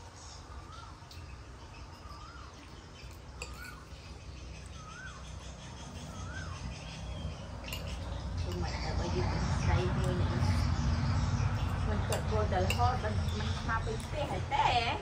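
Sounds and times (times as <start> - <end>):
low steady hum: 0.0 - 15.0
bird whistling: 1.9 - 3.9, 4.6 - 8.1.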